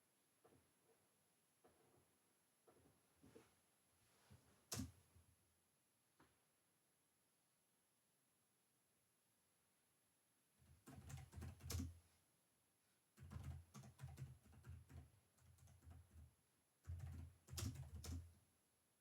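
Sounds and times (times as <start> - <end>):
computer keyboard typing: 10.7 - 12.0, 13.2 - 18.3.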